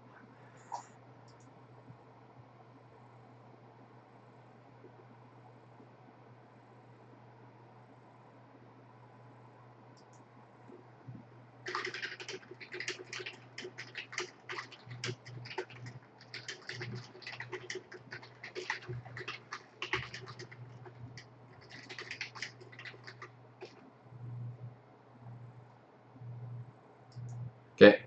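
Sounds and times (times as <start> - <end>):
low steady hum: 0.0 - 28.0
typing on computer keyboard: 11.7 - 23.8.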